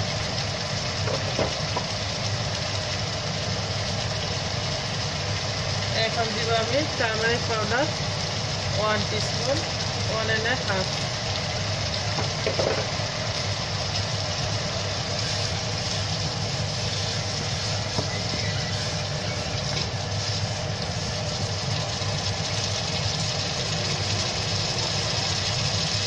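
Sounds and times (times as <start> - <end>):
onions frying sizzle: 0.0 - 26.0
wooden spatula stirring: 15.1 - 21.8.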